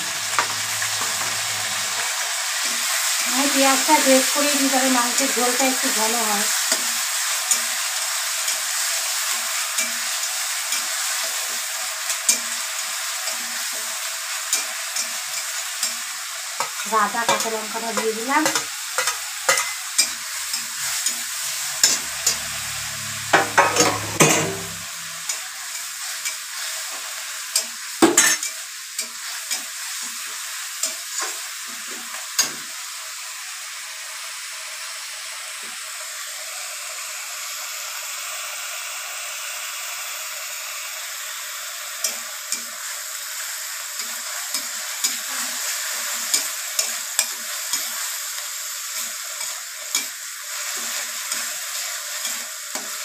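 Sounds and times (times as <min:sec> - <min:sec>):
vegetables sizzling in hot oil: 0:00.0 - 0:53.0
metal spatula scraping pan: 0:16.6 - 0:26.4.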